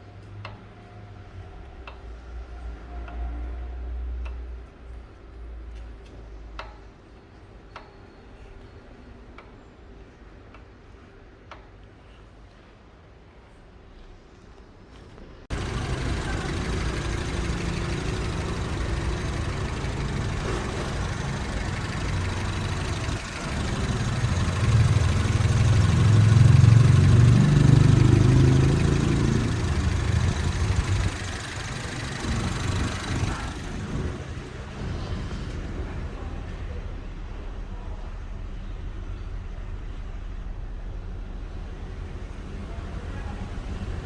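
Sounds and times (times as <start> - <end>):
car engine running: 15.5 - 37.6, 40.5 - 44.0.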